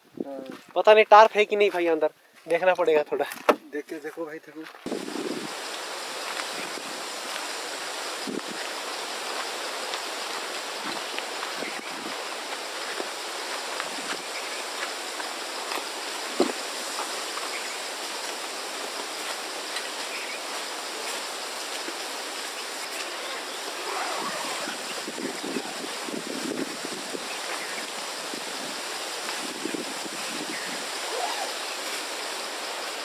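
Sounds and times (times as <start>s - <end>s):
sharp thump: 3.4s - 3.7s
strong wind blowing: 4.9s - 5.7s, 6.4s - 9.0s, 10.8s - 14.3s, 23.1s - 31.9s.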